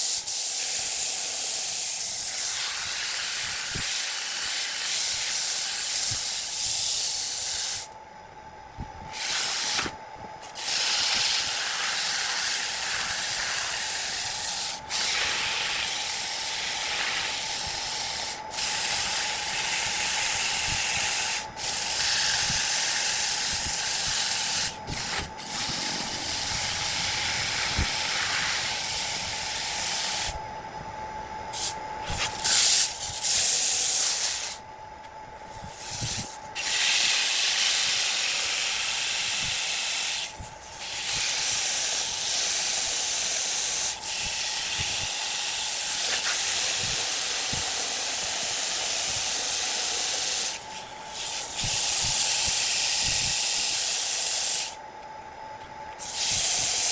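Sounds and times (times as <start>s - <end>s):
faint steady whine: 0.0s - 56.9s
steady hissing: 9.1s - 30.4s.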